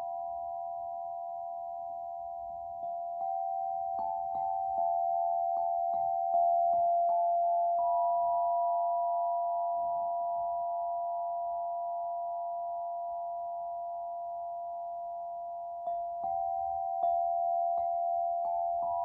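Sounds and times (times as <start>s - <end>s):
sound-healing instruments ringing: 13.9s - 19.0s.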